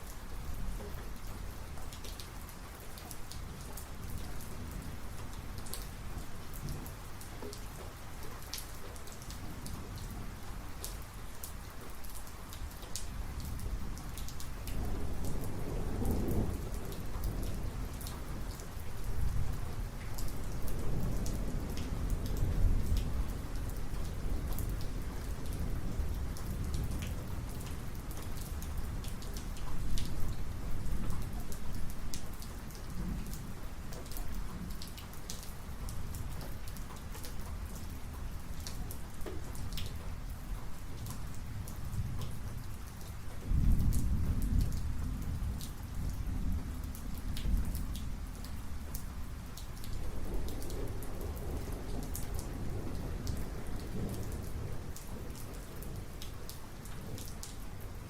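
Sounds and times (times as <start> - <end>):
raindrops striking a surface: 0.0 - 58.0
steady rain: 0.0 - 58.0
rolling thunder: 43.4 - 48.3, 49.9 - 56.2.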